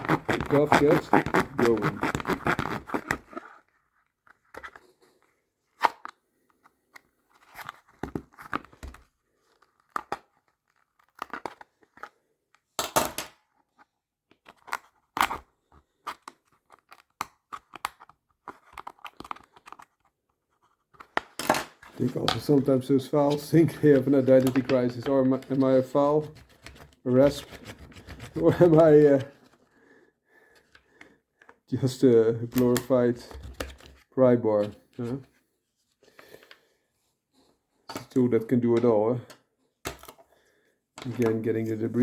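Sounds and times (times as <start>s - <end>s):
hand tools scraping plastic: 0.0s - 3.7s, 20.8s - 29.6s.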